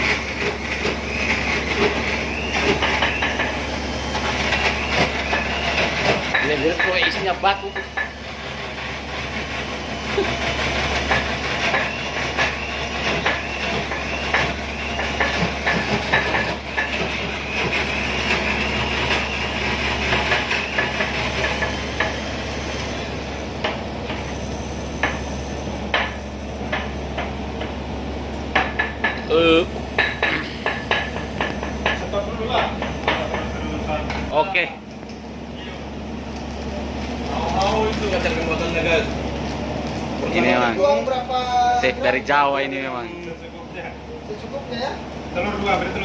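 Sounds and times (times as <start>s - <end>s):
stone pestle pounding in mortar: 0.4s - 3.6s, 11.0s - 18.4s, 19.9s - 22.2s, 28.5s - 29.3s, 30.0s - 33.5s.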